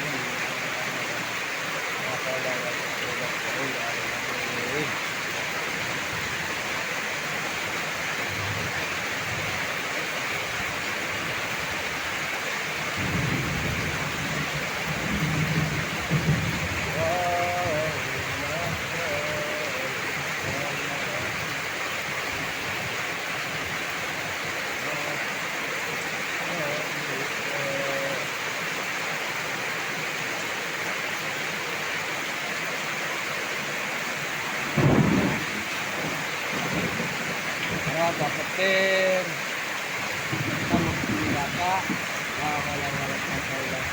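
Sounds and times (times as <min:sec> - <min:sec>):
heavy rain falling: 0:00.0 - 0:43.9
thunder rumbling: 0:12.9 - 0:21.5, 0:34.6 - 0:38.6, 0:40.1 - 0:43.9.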